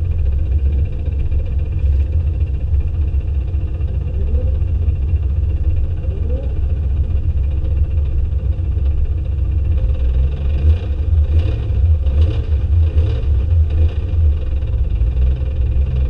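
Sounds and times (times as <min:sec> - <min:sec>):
car engines rumbling: 0:00.0 - 0:16.0.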